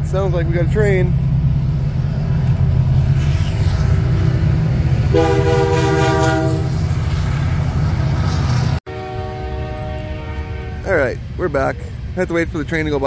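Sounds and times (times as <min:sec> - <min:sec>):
train passing rumble: 0:00.0 - 0:13.0
train horn chord: 0:05.1 - 0:06.8, 0:08.9 - 0:11.0.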